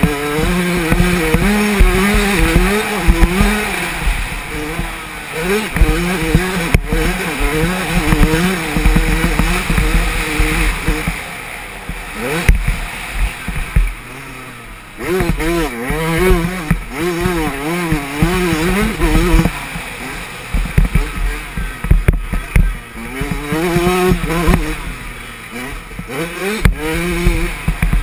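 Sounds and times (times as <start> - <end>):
knocks and rattles: 0.0 - 11.2
motocross bike engine revving: 0.0 - 28.0.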